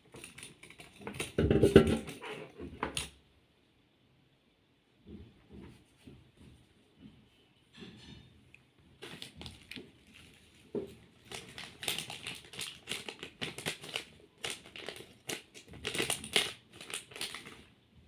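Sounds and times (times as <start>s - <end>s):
fidget toy crinkling and crunching: 9.0s - 17.7s.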